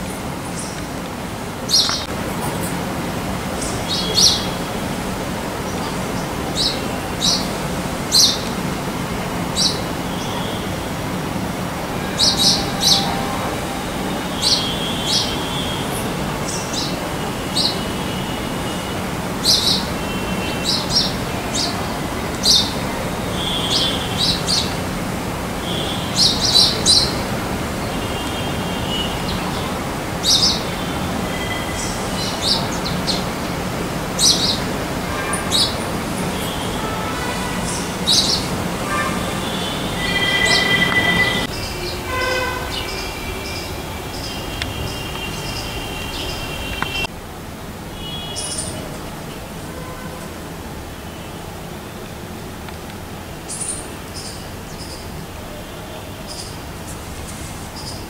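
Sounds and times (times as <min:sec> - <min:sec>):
small birds chirping: 0:01.7 - 0:02.1, 0:03.6 - 0:04.6, 0:05.6 - 0:08.5, 0:34.2 - 0:34.7, 0:37.7 - 0:47.1.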